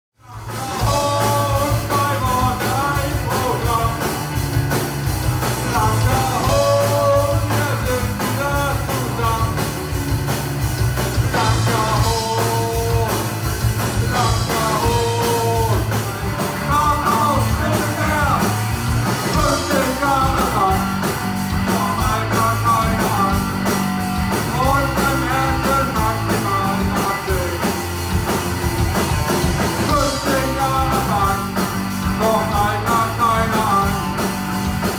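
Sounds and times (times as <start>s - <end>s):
person singing: 0.2s - 4.2s, 5.4s - 9.7s, 11.3s - 13.4s, 14.0s - 18.6s, 19.2s - 27.8s, 29.9s - 34.3s
electric guitar: 0.2s - 34.9s
punk rock band playing: 0.2s - 34.9s.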